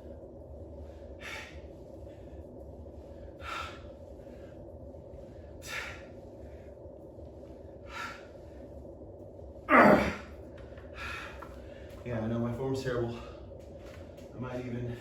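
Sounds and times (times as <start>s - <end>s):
low hum: 0.0s - 15.0s
man breathing hard: 0.8s - 6.8s, 7.4s - 9.0s, 9.6s - 12.0s.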